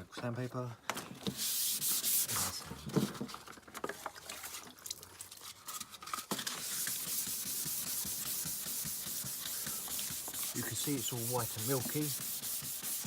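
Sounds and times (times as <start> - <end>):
sandpaper rubbing on plastic: 1.3 - 2.6, 6.3 - 13.0.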